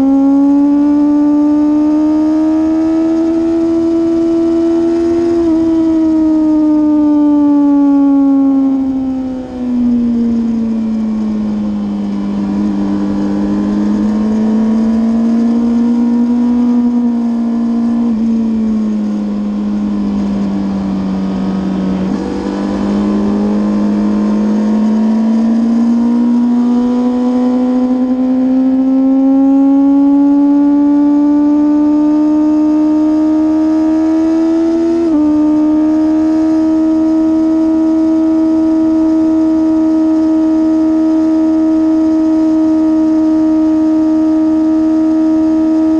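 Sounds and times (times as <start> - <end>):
sportbike engine running: 9.8 - 31.2.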